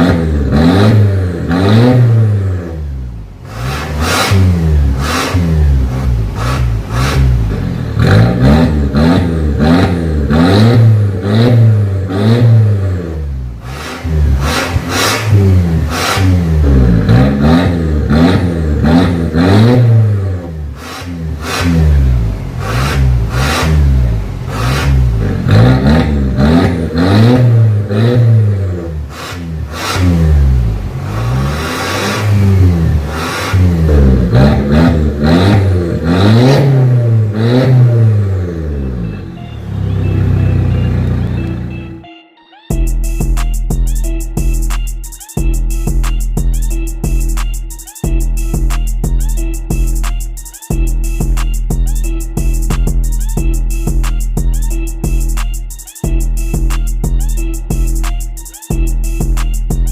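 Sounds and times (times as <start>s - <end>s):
exhaust cracks: 0.0s - 12.8s, 13.5s - 38.6s
car engine revving: 0.0s - 42.0s.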